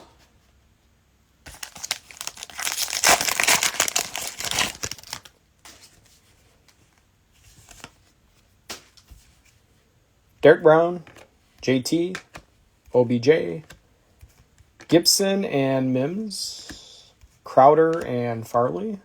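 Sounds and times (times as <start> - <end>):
cellophane tearing and crinkling: 1.5 - 5.3.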